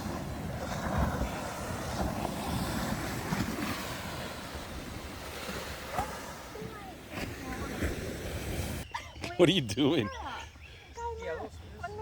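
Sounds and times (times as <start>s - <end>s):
surf washing: 0.0s - 8.9s
wind buffeting microphone: 0.0s - 8.9s.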